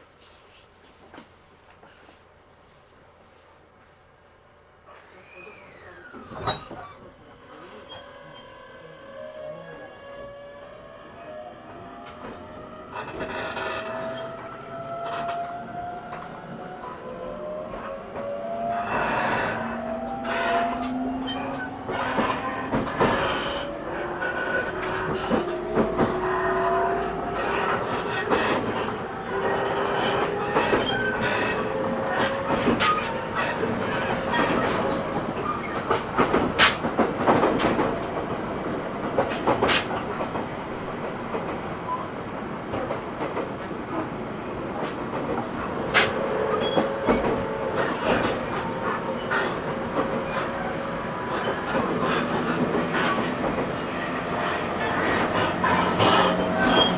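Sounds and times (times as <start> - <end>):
train wheels clicking over rail joints: 17.7 - 26.6, 27.3 - 41.6, 42.7 - 56.9.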